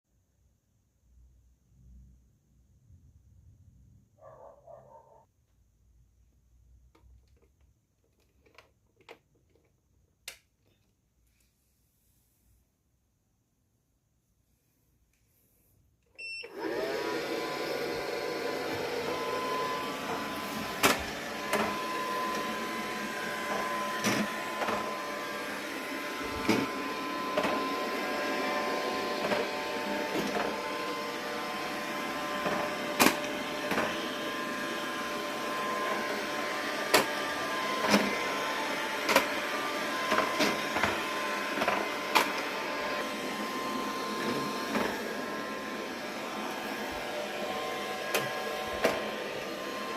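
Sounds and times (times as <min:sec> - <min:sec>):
robot vacuum motor and brush whir: 0:16.2 - 0:49.9.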